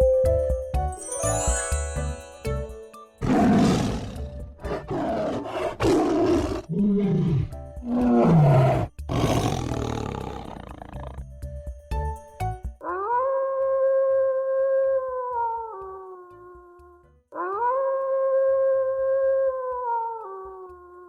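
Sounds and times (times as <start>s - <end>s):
short music jingle: 1.0s - 3.6s
tiger roaring and growling: 3.2s - 11.3s.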